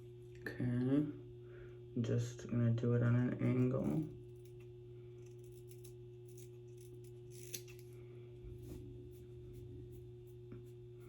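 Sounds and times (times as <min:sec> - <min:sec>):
steady low hum: 0:00.0 - 0:11.0
scissors snipping hair: 0:05.2 - 0:07.9.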